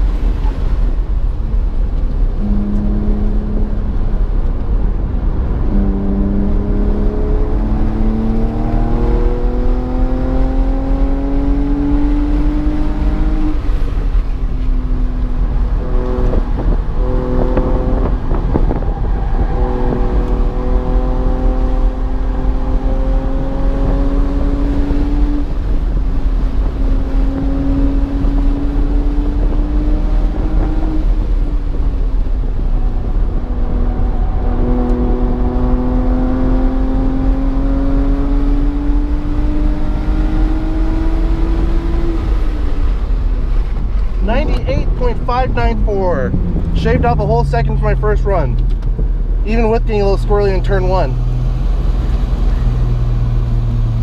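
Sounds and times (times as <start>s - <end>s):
car engine revving through gears: 1.6s - 54.0s
low rumble: 41.2s - 54.0s.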